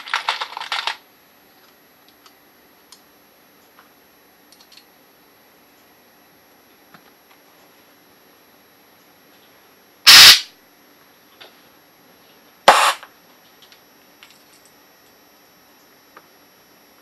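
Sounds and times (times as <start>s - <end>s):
small clicks of parts handled: 4.5s - 4.9s, 13.6s - 14.8s
compressed air blasts: 10.1s - 10.5s, 12.7s - 13.0s.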